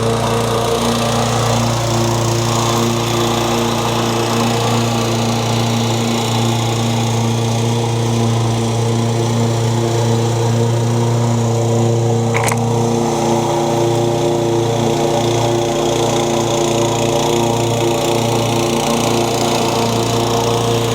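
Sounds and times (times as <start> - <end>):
lawn mower engine running: 0.0 - 20.9
sharp click: 12.3 - 12.7.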